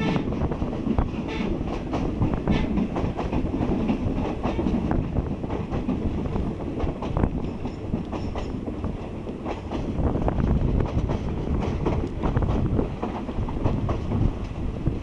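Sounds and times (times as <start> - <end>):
train rumbling on track: 0.0 - 15.0
train wheels clacking: 0.0 - 15.0.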